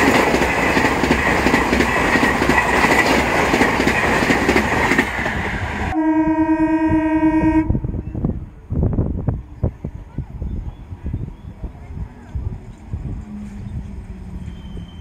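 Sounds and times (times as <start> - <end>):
wheels clattering over rail joints: 0.0 - 5.3
train coaches rumbling past: 0.0 - 7.0, 7.6 - 15.0
long train horn blast: 5.9 - 8.0.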